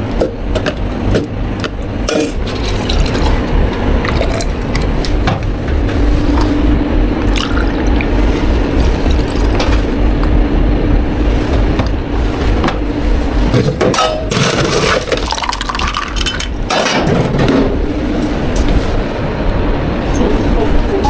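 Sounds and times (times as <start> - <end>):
rushing rattling noise: 0.0 - 21.0
steady low hum: 0.0 - 21.0
cups and utensils clinking: 2.0 - 3.2.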